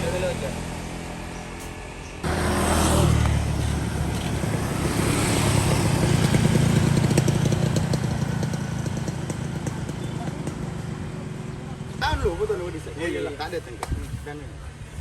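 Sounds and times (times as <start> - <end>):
two-stroke motorcycle engine running: 2.2 - 12.7.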